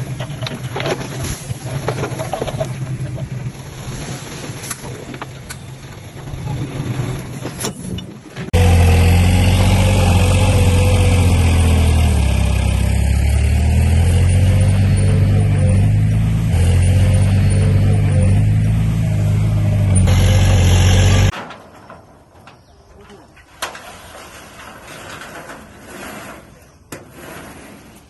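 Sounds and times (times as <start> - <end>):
clanks and knocks: 0.0 - 3.3
heavy machinery diesel engines: 0.0 - 21.3
loud engine running close by: 8.6 - 21.3.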